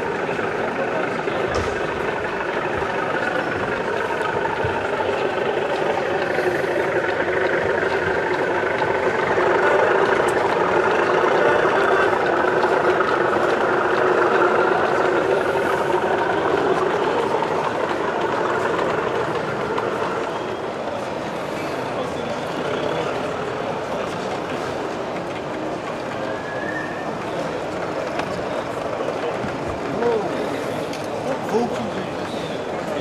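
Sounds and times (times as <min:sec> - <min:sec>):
model locomotive engine sound: 0:00.0 - 0:33.0.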